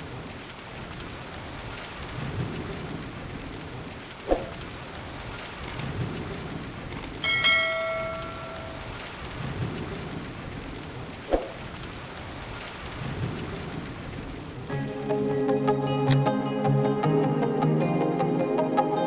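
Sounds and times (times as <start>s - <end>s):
low thunder rumbling: 0.0s - 14.7s
heavy rain falling: 0.0s - 16.2s
bell-like ringing strike: 7.3s - 8.9s.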